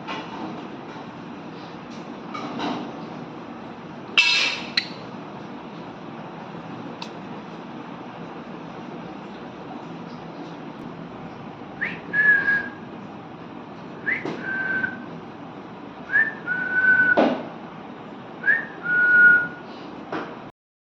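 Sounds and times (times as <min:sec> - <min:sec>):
parrot whistling: 0:04.2 - 0:05.0.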